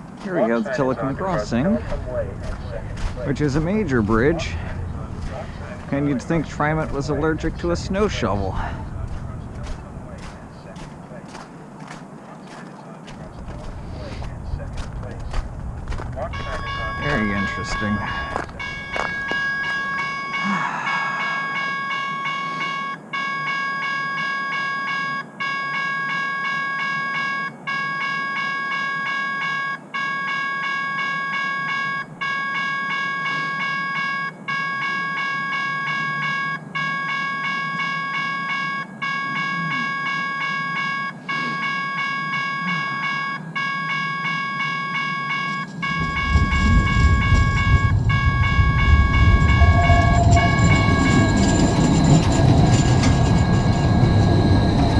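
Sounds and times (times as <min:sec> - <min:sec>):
light rail train whine: 0:00.0 - 0:23.2, 0:34.7 - 0:54.9
loud low rumble: 0:01.0 - 0:11.2, 0:13.2 - 0:19.2, 0:45.8 - 0:54.9.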